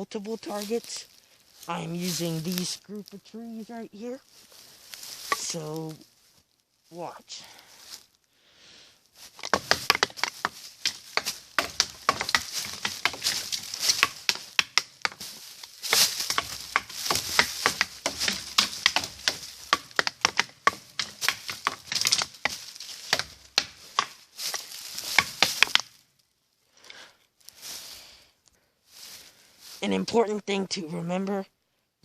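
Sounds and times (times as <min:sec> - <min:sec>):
sticks knocking on tree trunks: 0:03.7 - 0:06.0, 0:09.2 - 0:26.0.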